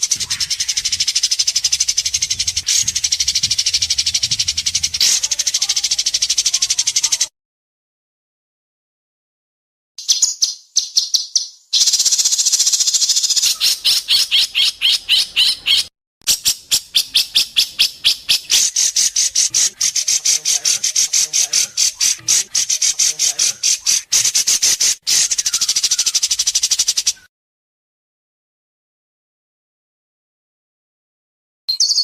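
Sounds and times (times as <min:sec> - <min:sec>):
songbird rapid trill: 0:00.0 - 0:07.3, 0:10.0 - 0:27.3.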